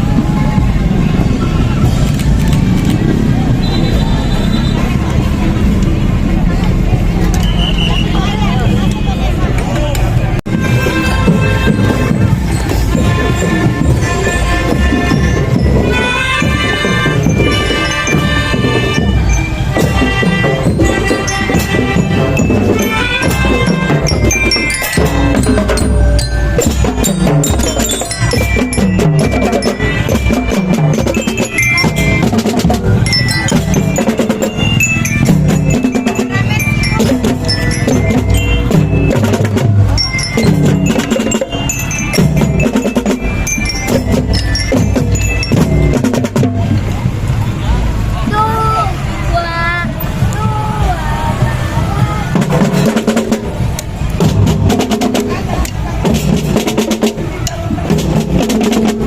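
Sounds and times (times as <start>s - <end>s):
marching drums: 0.0s - 59.0s
mallet bell melody: 10.6s - 47.0s.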